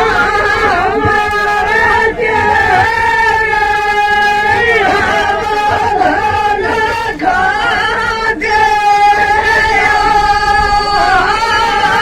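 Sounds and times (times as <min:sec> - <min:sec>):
women singing folk song: 0:00.0 - 0:12.0.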